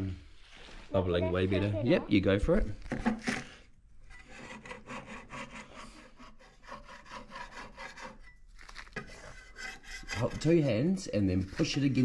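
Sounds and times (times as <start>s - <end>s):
hand scraper scraping wood: 2.9s - 10.8s.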